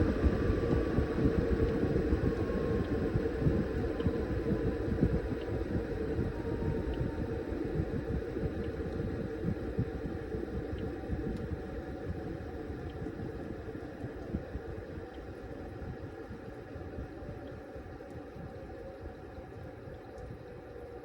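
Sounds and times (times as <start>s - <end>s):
washing machine churning: 0.0s - 15.4s
faint tick: 19.9s - 20.4s.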